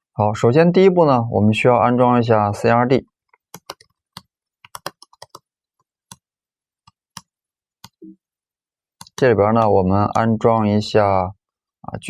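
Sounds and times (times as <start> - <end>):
computer keyboard typing: 3.3 - 8.1, 9.0 - 10.3.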